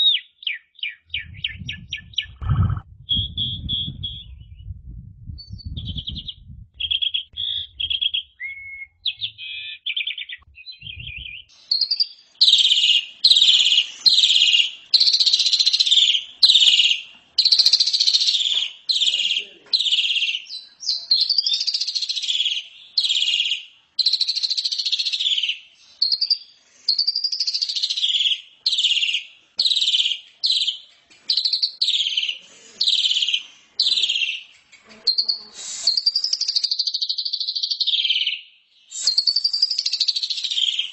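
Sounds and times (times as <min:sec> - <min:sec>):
starling singing: 0:00.8 - 0:04.6, 0:05.6 - 0:18.5, 0:31.4 - 0:38.0.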